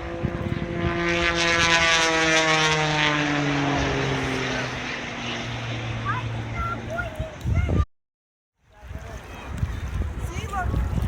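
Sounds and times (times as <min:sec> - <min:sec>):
propeller airplane flying past: 0:00.0 - 0:07.8.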